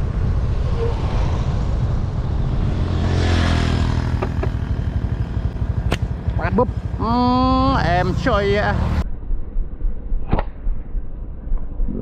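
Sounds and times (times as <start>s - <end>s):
vehicle passing by: 0.0s - 9.0s.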